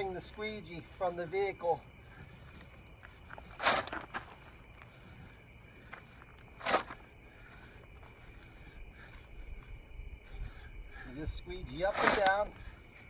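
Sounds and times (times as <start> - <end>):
squeegee swishing over tape: 10.2 - 13.0.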